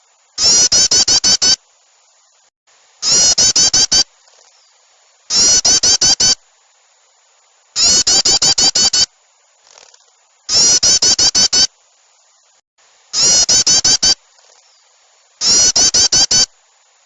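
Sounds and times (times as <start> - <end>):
small birds scolding calls: 0.4 - 1.6, 3.0 - 6.4, 7.8 - 9.1, 9.7 - 11.7, 13.1 - 16.5.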